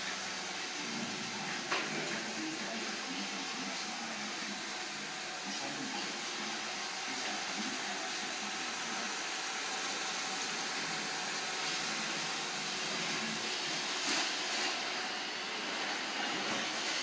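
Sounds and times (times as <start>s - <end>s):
robot vacuum cleaner whirring: 0.0s - 17.0s.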